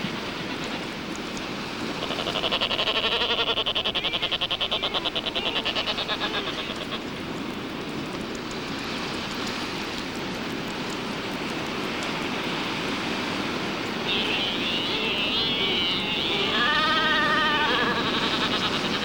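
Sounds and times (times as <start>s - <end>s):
albatross rattling call: 2.1s - 7.0s, 14.0s - 19.0s.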